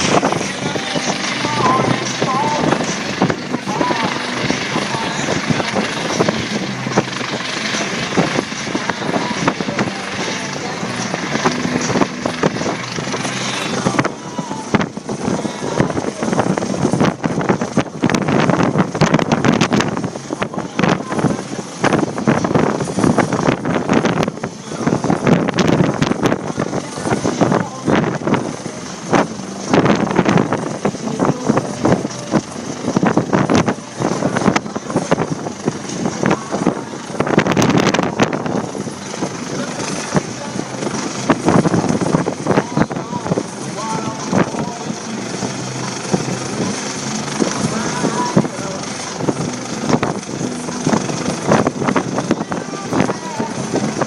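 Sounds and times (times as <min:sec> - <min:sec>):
helicopter hovering: 0:00.0 - 0:54.0
wind buffeting microphone: 0:00.0 - 0:54.0.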